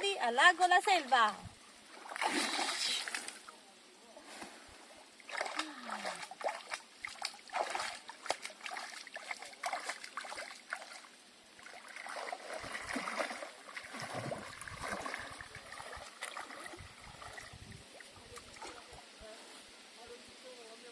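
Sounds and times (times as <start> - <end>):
lake water splashing and lapping: 0.6 - 3.5, 4.4 - 19.2.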